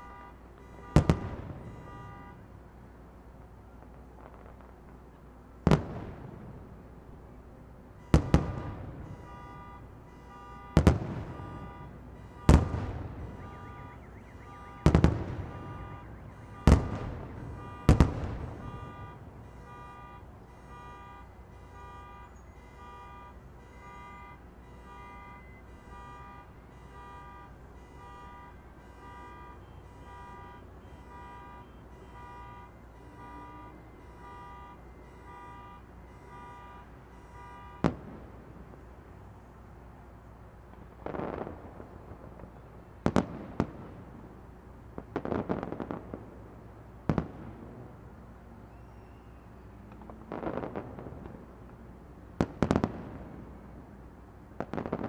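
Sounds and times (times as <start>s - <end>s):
distant fireworks booms: 0.0s - 2.4s, 3.8s - 7.4s, 8.0s - 20.8s, 36.7s - 38.9s, 40.7s - 48.2s, 49.7s - 55.0s
electronic alarm-like beeping: 18.6s - 37.8s.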